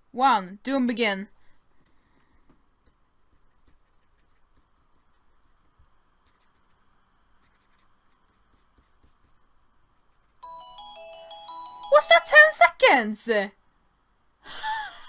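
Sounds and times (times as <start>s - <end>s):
stylus scratching and tapping: 1.6s - 10.4s
chime-like music notes: 10.4s - 12.6s.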